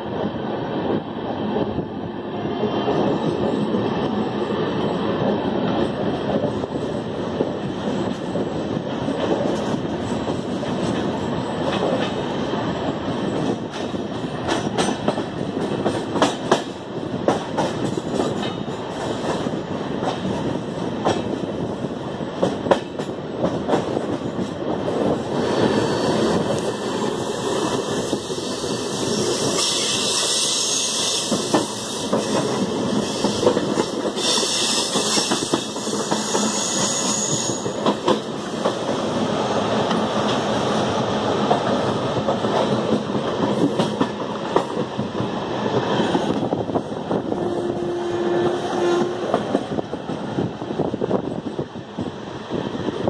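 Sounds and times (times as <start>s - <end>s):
train wheels rumbling: 0.0s - 53.0s.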